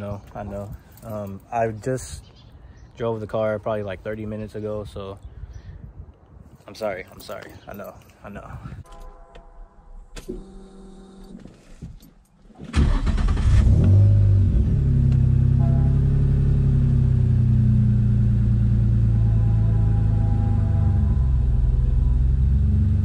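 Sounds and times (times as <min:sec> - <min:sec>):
car engine starting and idling: 0:12.4 - 0:23.0.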